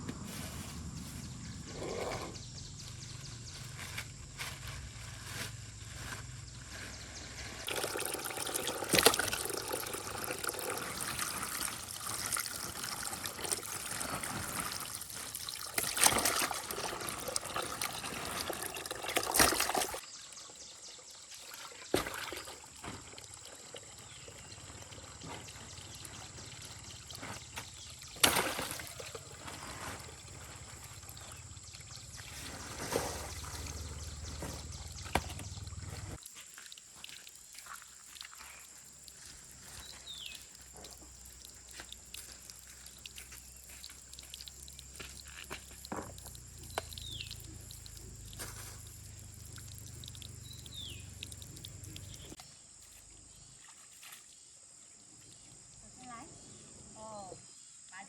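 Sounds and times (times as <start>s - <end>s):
water pouring into a basin: 7.6s - 20.0s, 21.1s - 27.3s, 27.9s - 34.1s, 36.2s - 52.4s.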